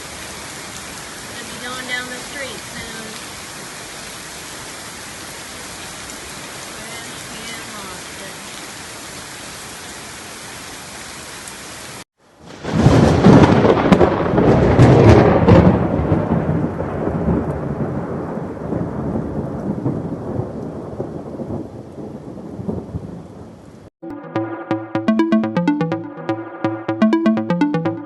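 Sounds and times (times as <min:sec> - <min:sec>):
heavy rain hissing: 0:00.0 - 0:08.5.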